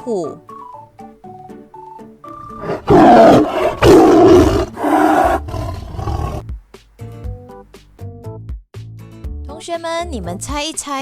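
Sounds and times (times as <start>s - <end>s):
light background music: 0.0s - 3.5s, 6.4s - 11.0s
tiger roaring: 2.3s - 6.4s.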